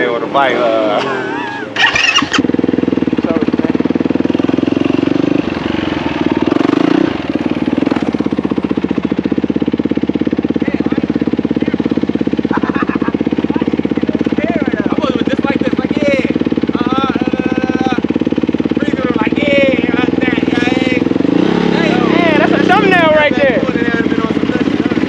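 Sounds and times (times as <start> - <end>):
dirt bike engine idling: 0.0 - 25.0
engine throttle blip: 1.0 - 4.2.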